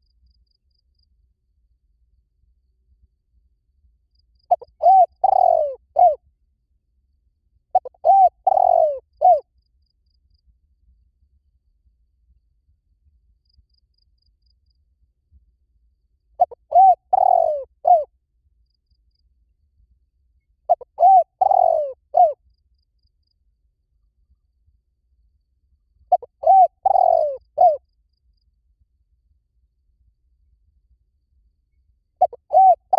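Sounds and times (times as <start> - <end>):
dove cooing: 4.5 - 6.2, 7.8 - 9.4, 16.4 - 18.1, 20.7 - 22.4, 26.1 - 27.8, 32.2 - 32.9.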